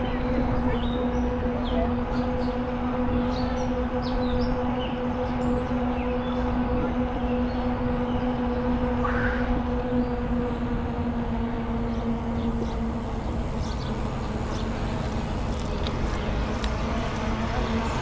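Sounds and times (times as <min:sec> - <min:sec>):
steady low hum: 0:00.0 - 0:18.0
birds chirping: 0:09.9 - 0:15.6
rolling rumble: 0:09.9 - 0:15.8.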